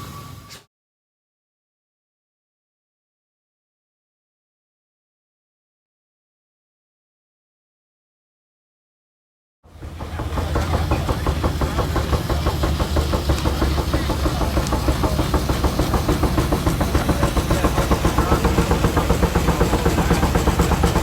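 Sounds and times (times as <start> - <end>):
engine with low rumble: 9.7 - 21.0.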